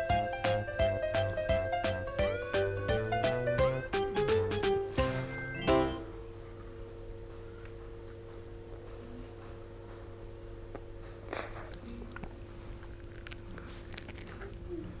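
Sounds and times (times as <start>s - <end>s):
steady hum: 0.0s - 12.8s
chewing crisp toasted sandwich: 10.7s - 15.0s.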